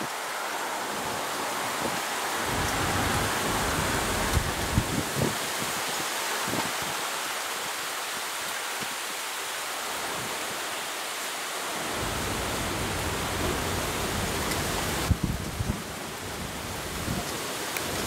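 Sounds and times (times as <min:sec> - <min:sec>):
heavy rain hiss: 0:00.0 - 0:18.0
low thunder rumble: 0:02.4 - 0:05.4, 0:11.9 - 0:17.2.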